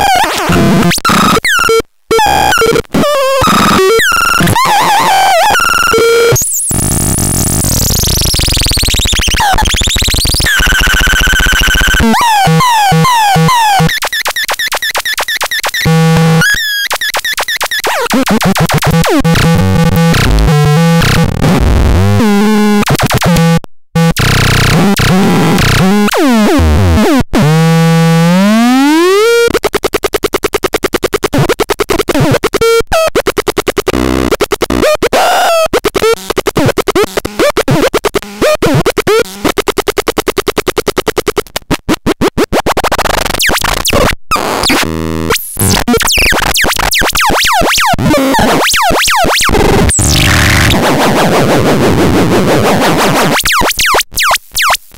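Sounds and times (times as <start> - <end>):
harsh synthesizer tones: 0.0 - 29.5, 42.8 - 54.8.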